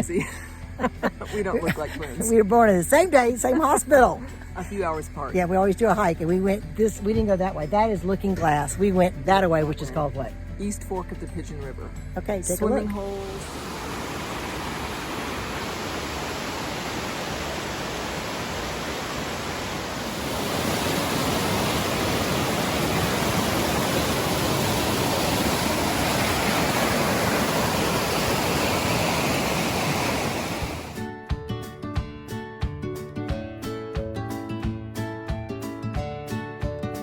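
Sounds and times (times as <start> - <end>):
river water rushing over rocks: 13.0 - 31.0.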